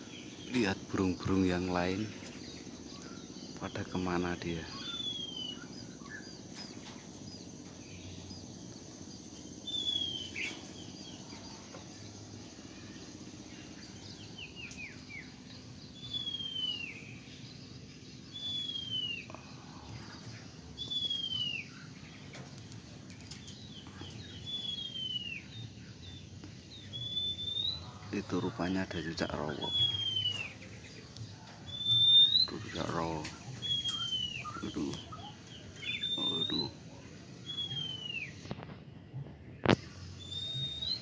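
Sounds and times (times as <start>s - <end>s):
birds chirping: 0.0s - 41.0s
bird whistling down-slurred: 4.7s - 6.2s, 9.6s - 10.6s, 16.0s - 17.2s, 18.3s - 19.4s, 20.8s - 21.8s, 24.4s - 25.6s, 26.8s - 28.2s, 29.3s - 30.6s, 31.7s - 33.0s, 33.6s - 36.8s, 37.4s - 38.4s, 40.2s - 41.0s.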